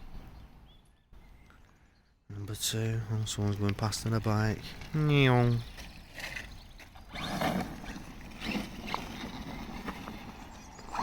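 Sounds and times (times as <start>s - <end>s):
toy truck scuffs and knocks: 5.6s - 11.0s.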